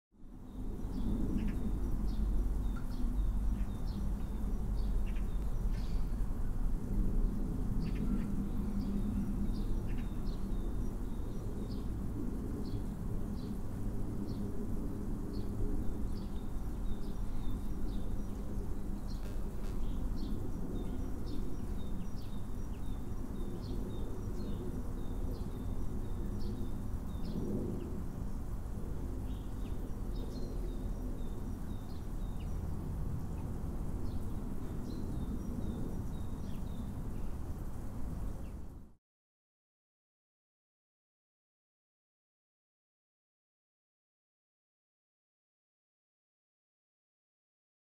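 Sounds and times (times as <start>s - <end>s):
small birds chirping: 0.4s - 6.5s, 7.3s - 13.6s, 15.2s - 38.7s.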